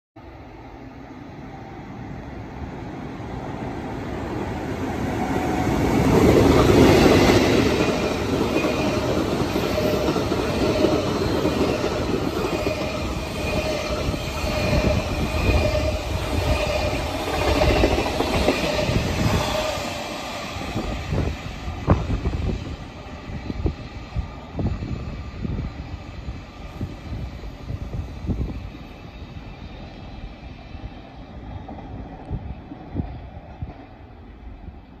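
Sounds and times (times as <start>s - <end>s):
freight train rumbling past: 0.2s - 35.0s.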